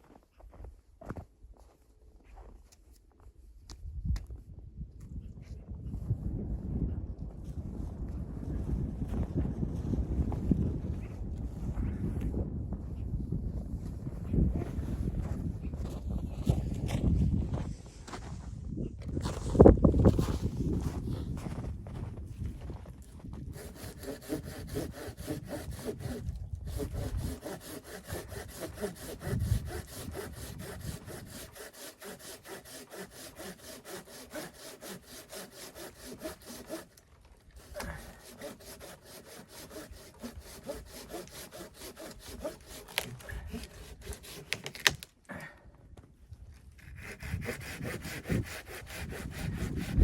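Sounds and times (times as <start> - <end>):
hand saw cutting wood: 23.5 - 45.1, 46.8 - 50.0.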